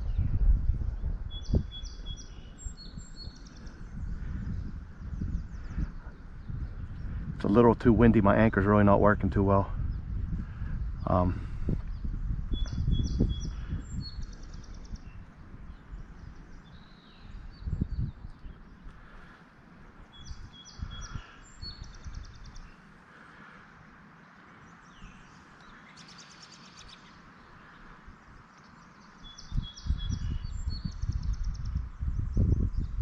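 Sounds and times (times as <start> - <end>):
songbird singing with trill: 0.0 - 18.9, 20.0 - 22.9, 24.2 - 33.0
wind thumps on microphone: 0.0 - 19.1, 20.0 - 22.8, 29.4 - 33.0.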